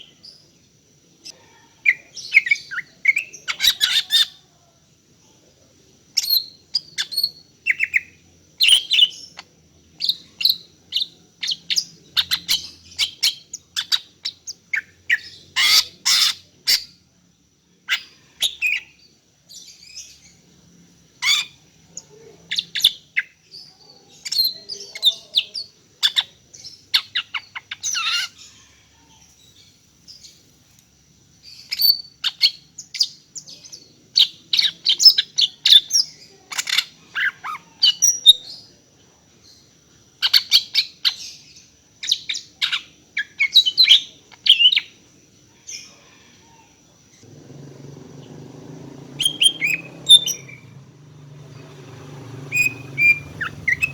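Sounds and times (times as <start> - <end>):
bird chirping rapidly: 47.2 - 53.9.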